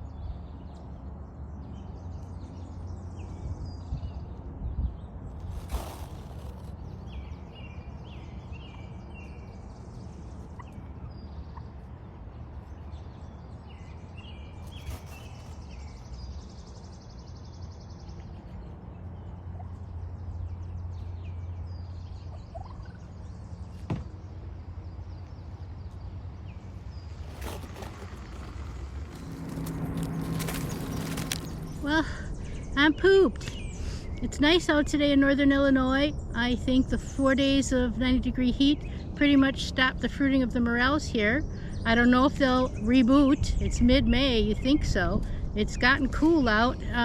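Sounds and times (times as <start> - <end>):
turkey gobbling: 22.5 - 23.0
low rumble: 24.2 - 37.1.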